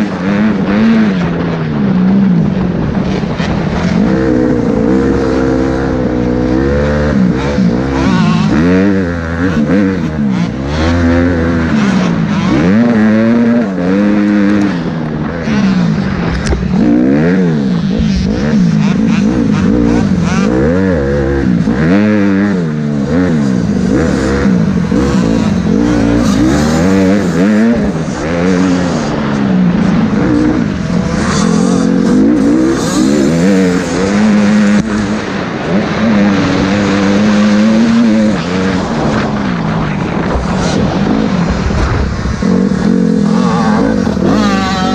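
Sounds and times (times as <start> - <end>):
motocross bikes revving: 0.0 - 44.9.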